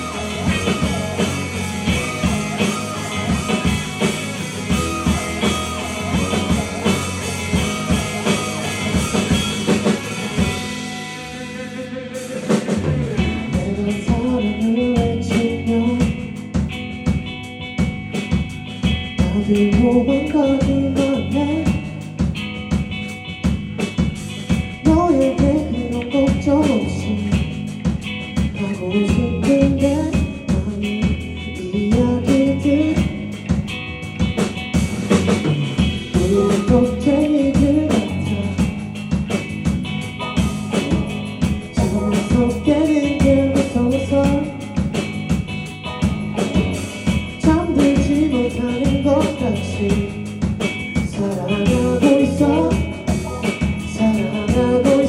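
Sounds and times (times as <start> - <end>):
person singing: 0.0 - 16.4, 19.2 - 22.0, 24.8 - 27.5, 28.5 - 33.3, 36.0 - 38.8, 40.4 - 45.0, 46.3 - 50.3, 51.0 - 55.0
drum kit: 0.0 - 55.0
guitar: 0.0 - 55.0.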